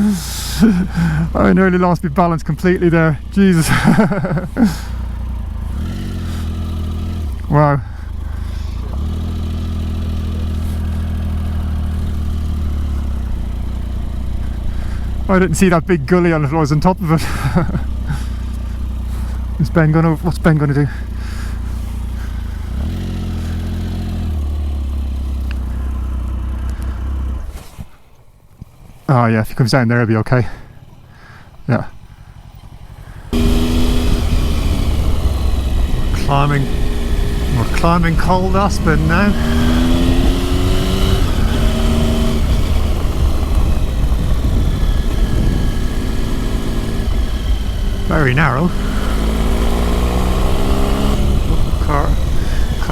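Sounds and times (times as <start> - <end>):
motorcycle engine running: 0.0 - 29.1, 30.3 - 52.9
second engine note: 32.2 - 52.9
wind buffeting microphone: 33.4 - 37.5, 39.4 - 48.1.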